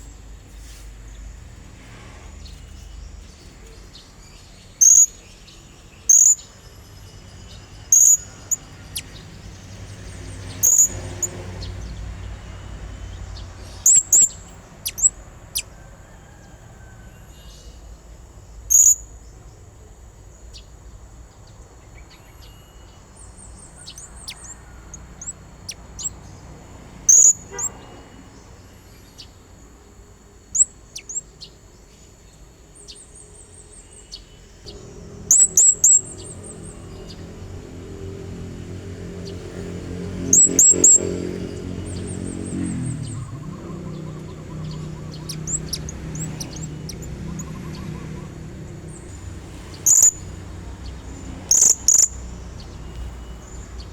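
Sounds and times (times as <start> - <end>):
parrot high-pitched calls: 10.6 - 11.4, 13.8 - 15.8, 27.1 - 27.7, 35.3 - 36.3, 43.2 - 48.6, 51.5 - 52.2.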